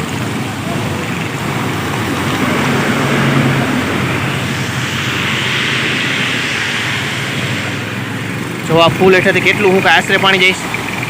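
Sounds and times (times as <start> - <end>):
floodwater rushing: 0.0 - 11.0
vehicle engine hum: 0.0 - 11.0.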